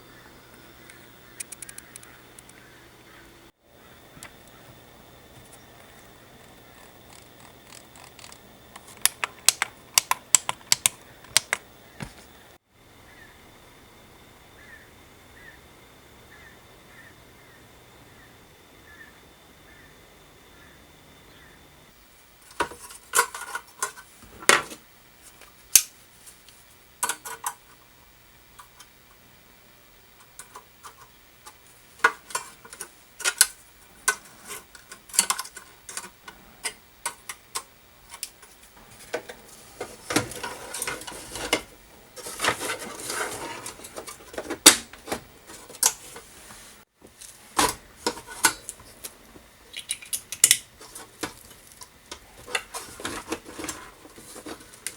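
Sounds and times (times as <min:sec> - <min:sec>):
rustling handling noise: 0:38.0 - 0:49.5, 0:50.7 - 0:54.9.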